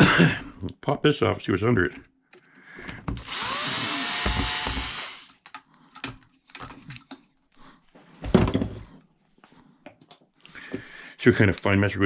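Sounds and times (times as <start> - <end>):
power drill whining: 3.2 - 5.4.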